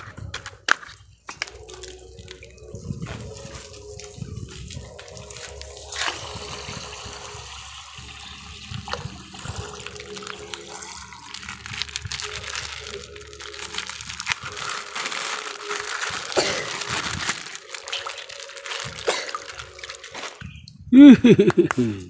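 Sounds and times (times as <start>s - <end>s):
water running and splashing: 1.3s - 20.5s.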